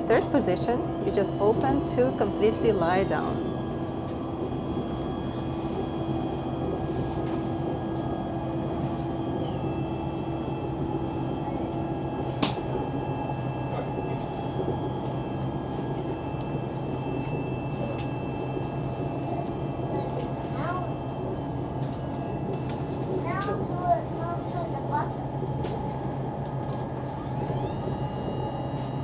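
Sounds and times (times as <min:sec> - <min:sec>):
train cabin rumble: 0:00.0 - 0:29.0
seat click: 0:12.3 - 0:12.6.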